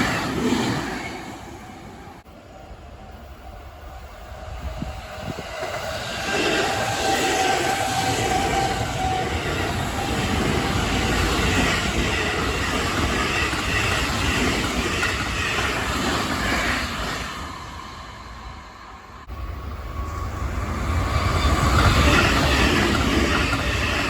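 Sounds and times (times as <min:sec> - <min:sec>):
train wheels running over rails: 0:04.6 - 0:18.0, 0:19.2 - 0:24.0.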